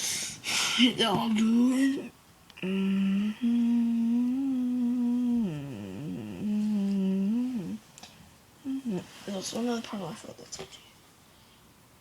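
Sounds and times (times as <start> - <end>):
person humming: 2.6 - 7.8, 8.6 - 9.1.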